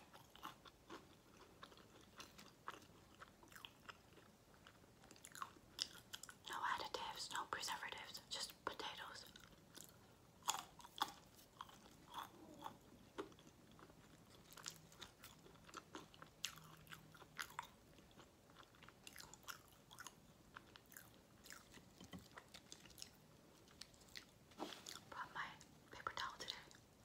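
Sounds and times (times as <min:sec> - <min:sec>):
chewing crunchy potato: 0:00.0 - 0:07.4, 0:08.5 - 0:27.0.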